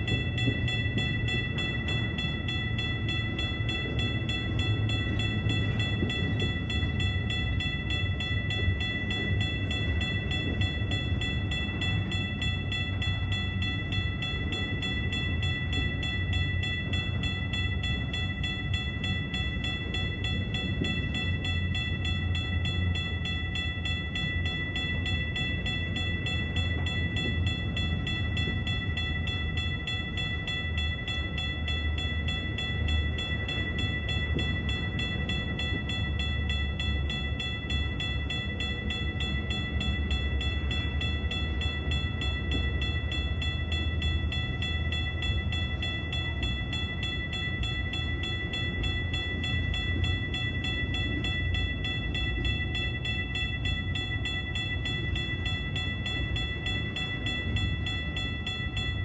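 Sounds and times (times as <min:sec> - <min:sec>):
crossing bell ringing: 0:00.0 - 0:59.0
wheels rumbling on rail: 0:00.0 - 0:59.0.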